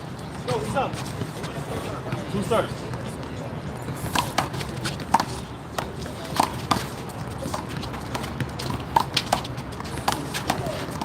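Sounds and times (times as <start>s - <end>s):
handball smacks and bounces: 4.0s - 11.0s.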